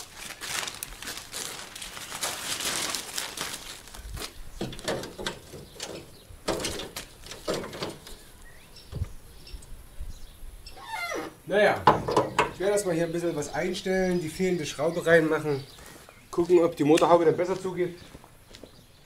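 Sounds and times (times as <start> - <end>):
dull knocks: 11.8 - 12.6.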